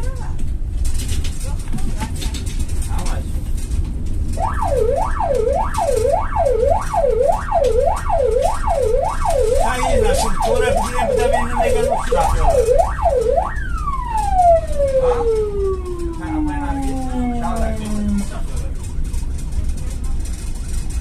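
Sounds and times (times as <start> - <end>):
low rumble: 0.0 - 21.0
electronic siren yelping and wailing: 4.4 - 18.3.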